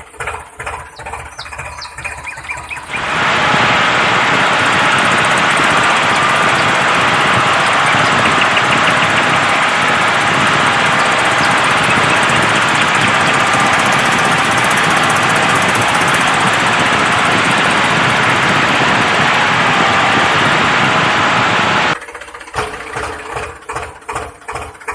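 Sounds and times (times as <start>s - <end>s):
loud motor noise: 0.6s - 22.0s
evenly repeating pulses: 2.8s - 22.0s.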